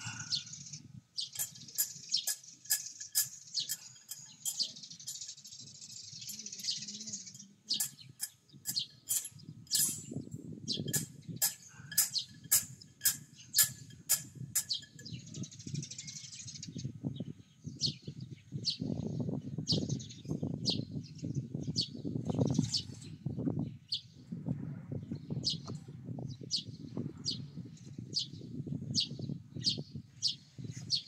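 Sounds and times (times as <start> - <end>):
bird chirping: 0.0 - 24.2.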